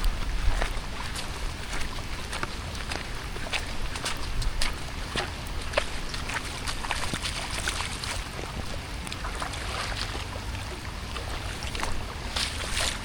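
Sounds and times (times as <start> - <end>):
rain drips and splashes: 0.0 - 13.0
wind rumble on microphone: 0.0 - 13.0.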